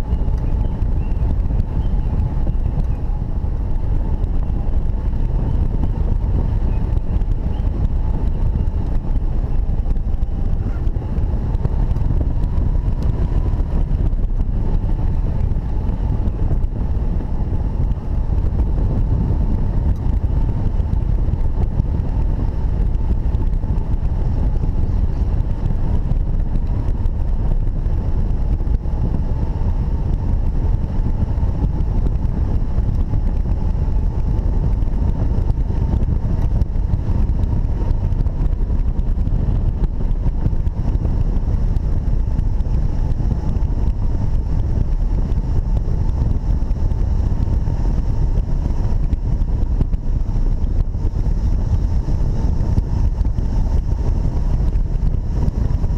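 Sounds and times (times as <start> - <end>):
strong wind on microphone: 0.0 - 55.9.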